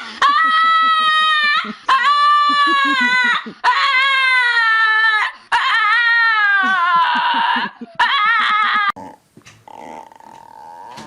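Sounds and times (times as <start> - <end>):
dog whining: 8.0 - 11.0.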